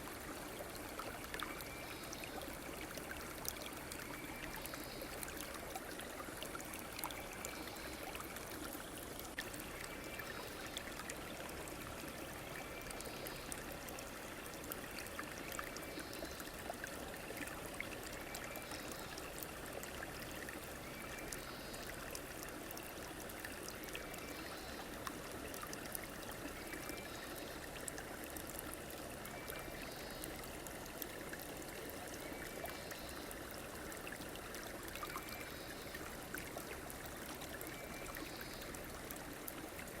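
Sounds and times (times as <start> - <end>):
stream babbling: 0.0 - 40.0.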